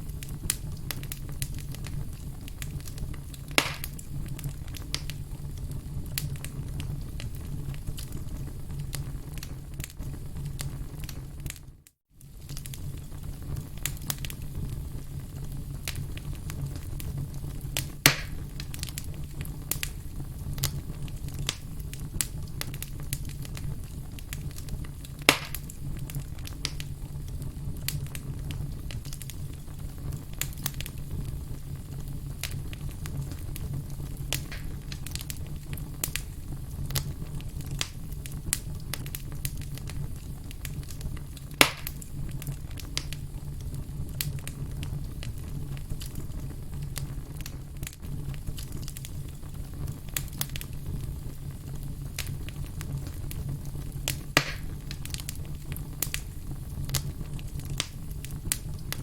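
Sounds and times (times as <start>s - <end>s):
campfire crackling: 0.0s - 59.0s
sharp fire pops: 0.0s - 59.0s.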